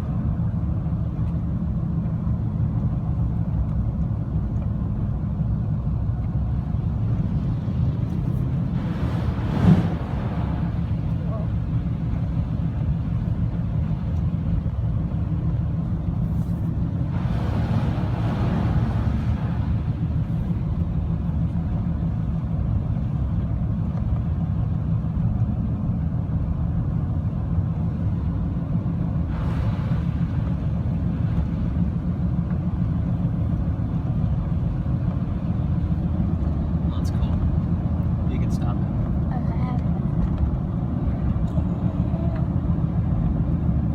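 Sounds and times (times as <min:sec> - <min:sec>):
car engine rumble: 0:00.0 - 0:43.9
road noise: 0:00.0 - 0:43.9
rushing noise: 0:16.4 - 0:20.8, 0:29.1 - 0:32.2.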